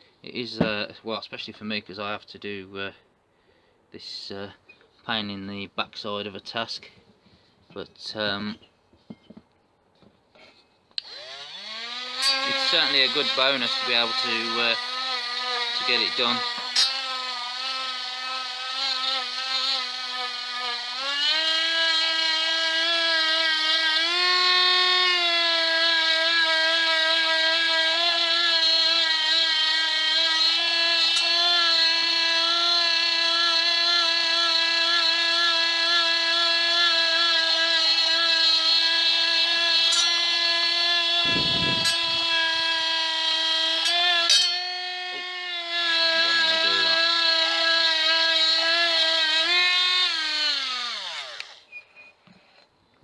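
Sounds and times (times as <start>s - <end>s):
grinder motor whine: 11.0s - 52.0s.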